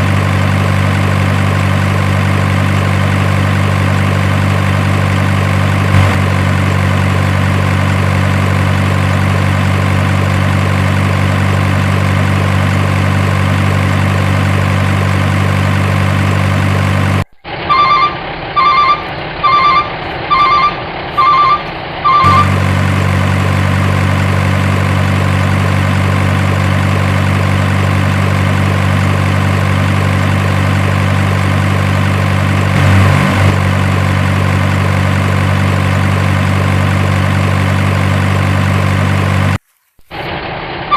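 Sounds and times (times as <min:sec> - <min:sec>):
truck engine idling: 0:00.0 - 0:39.6
beeps: 0:17.7 - 0:22.5.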